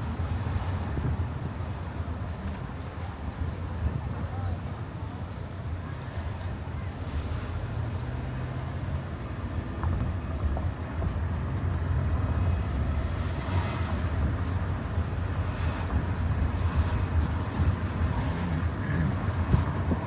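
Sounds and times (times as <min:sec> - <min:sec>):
car tyres and engine rumbling: 0:06.9 - 0:20.0.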